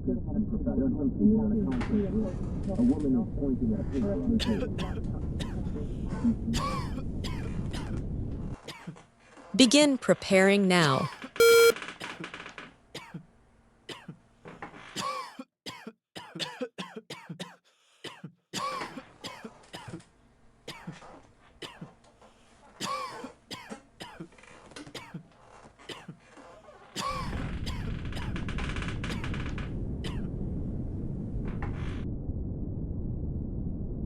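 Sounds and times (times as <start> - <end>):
person coughing: 6.6 - 8.0, 15.0 - 20.0, 22.8 - 24.3, 27.0 - 28.3, 30.1 - 30.3
short beep: 11.4 - 11.8.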